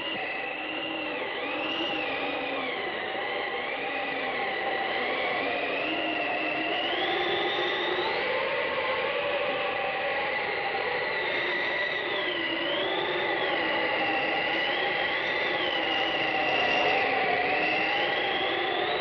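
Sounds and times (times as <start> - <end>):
wavering whistle-like tone: 0.0 - 19.0.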